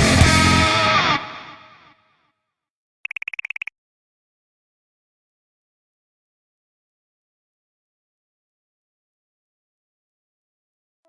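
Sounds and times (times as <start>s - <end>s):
rock music: 0.0s - 1.5s.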